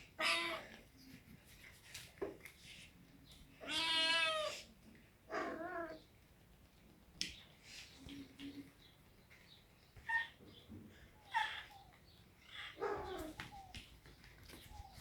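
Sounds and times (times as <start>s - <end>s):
cat meowing: 3.6s - 4.6s, 5.3s - 6.0s, 11.2s - 13.7s.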